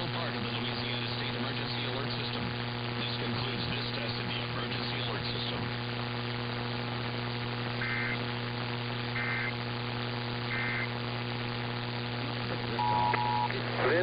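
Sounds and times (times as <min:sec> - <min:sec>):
electrical hum: 0:00.0 - 0:14.0
radio static: 0:00.0 - 0:14.0
digital data tone bursts: 0:12.8 - 0:13.5.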